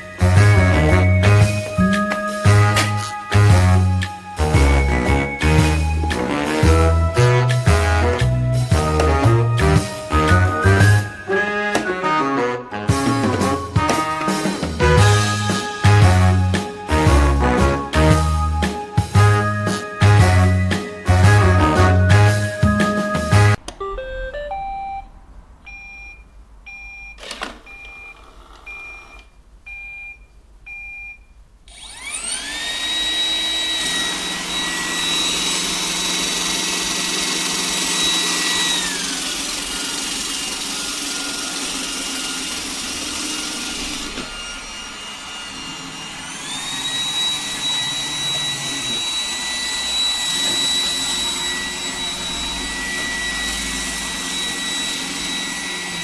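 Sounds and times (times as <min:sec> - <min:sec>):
vacuum suction fan whine: 0:31.7 - 0:56.0.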